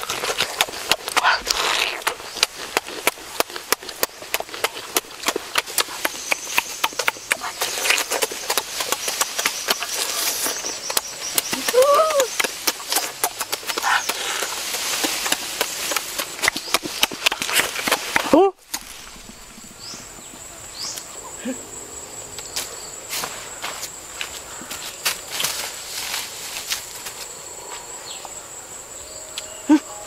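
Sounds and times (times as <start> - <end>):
chewing and lip-smacking: 0.0 - 18.2.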